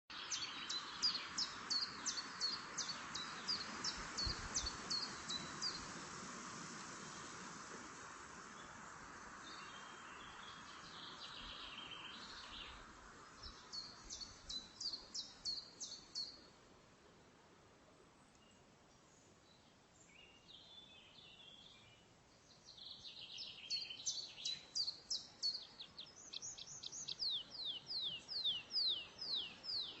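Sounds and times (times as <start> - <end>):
songbird singing: 0.1 - 16.6, 18.2 - 30.0
outdoor background hiss: 0.1 - 30.0
songbird singing high notes: 22.8 - 30.0.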